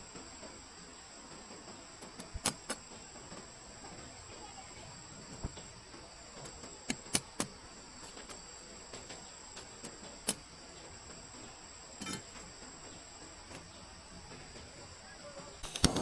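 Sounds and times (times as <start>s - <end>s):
faint hiss: 0.0s - 16.0s
wooden snaps and pops: 2.0s - 2.9s, 6.4s - 8.4s, 15.6s - 16.0s.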